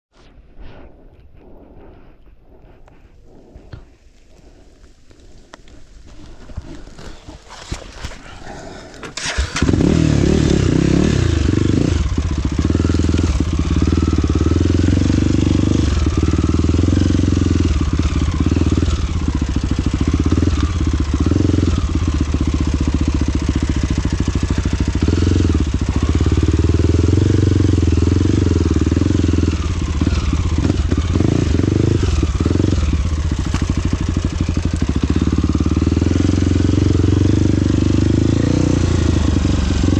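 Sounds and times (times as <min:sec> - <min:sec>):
motorcycle engine starting and running: 0:08.9 - 0:39.9.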